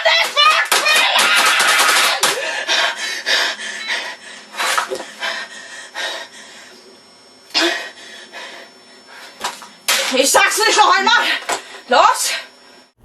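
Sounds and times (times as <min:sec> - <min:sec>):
boy shouting: 0:00.0 - 0:02.2
boy breathing hard: 0:02.2 - 0:06.8.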